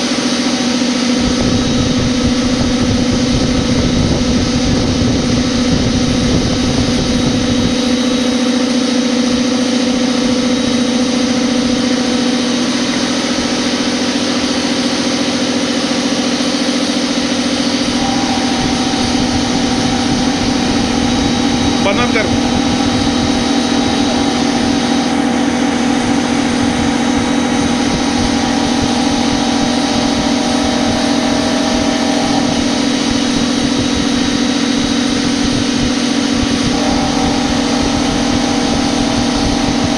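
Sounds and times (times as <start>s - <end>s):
milling machine humming: 0.0s - 39.9s
faint high whine: 1.2s - 13.0s, 17.6s - 39.9s.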